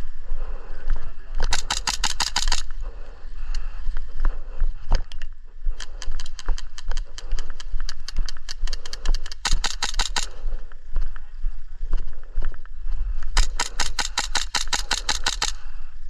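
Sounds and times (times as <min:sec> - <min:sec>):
sharp clicks and cracks: 0:01.3 - 0:03.6, 0:04.9 - 0:10.4, 0:13.2 - 0:15.7
airsoft guns firing rapid shots: 0:01.4 - 0:02.8, 0:08.1 - 0:10.5, 0:13.4 - 0:15.7.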